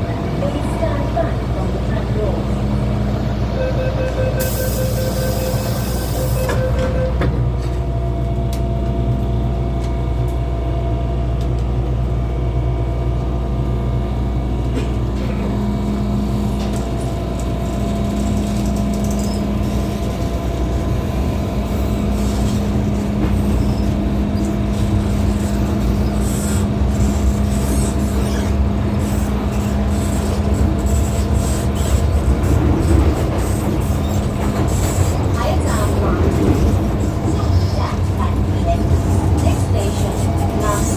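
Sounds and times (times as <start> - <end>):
train motor tones: 0.0 - 7.9, 14.7 - 40.9
train running low rumble: 0.0 - 40.9
door-closing warning beeps: 3.5 - 7.5.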